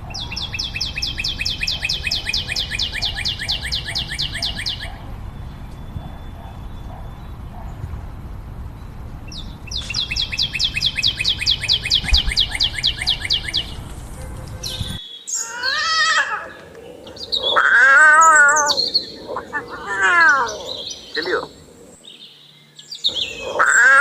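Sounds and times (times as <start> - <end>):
bird chirping: 0.0 - 24.0
animal giving long wavering calls: 15.4 - 21.6, 23.3 - 24.0.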